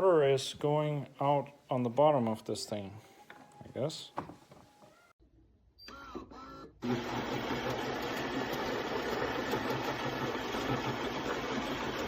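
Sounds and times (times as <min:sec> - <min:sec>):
espresso machine whirring: 0:06.8 - 0:12.0.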